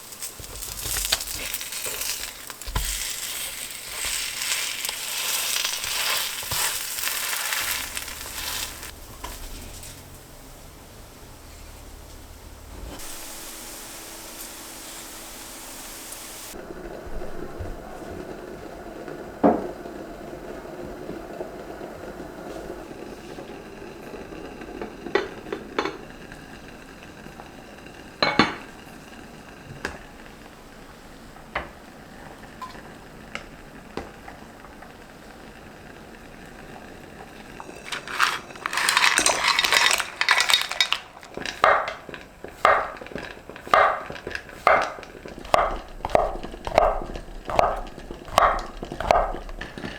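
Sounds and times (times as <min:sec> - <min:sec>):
dishes and utensils clinking: 0:28.2 - 0:28.8, 0:37.5 - 0:49.9.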